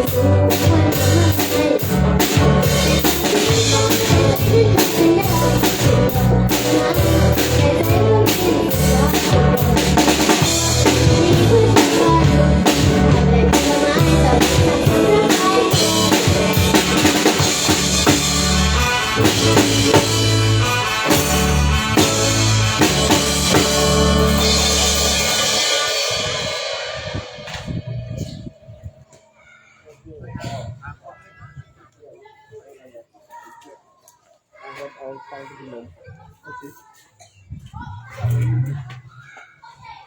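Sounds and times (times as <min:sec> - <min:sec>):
live band playing: 0:00.0 - 0:28.7.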